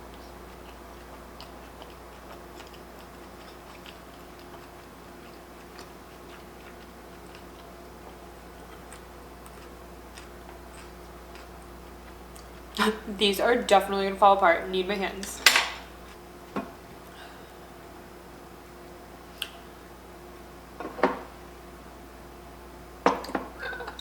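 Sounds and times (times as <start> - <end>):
person chewing: 0.0 - 12.8
steady low hum: 0.0 - 24.0.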